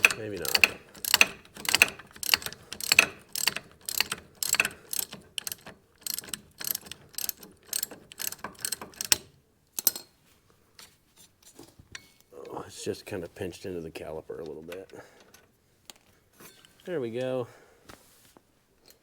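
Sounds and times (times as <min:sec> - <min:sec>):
ratchet wrench clicking: 0:00.0 - 0:10.1.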